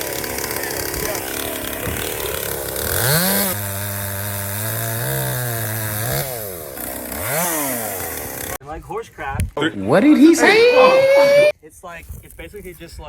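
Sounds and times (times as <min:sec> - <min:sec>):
chainsaw revving and cutting: 0:00.0 - 0:08.6, 0:10.0 - 0:11.5.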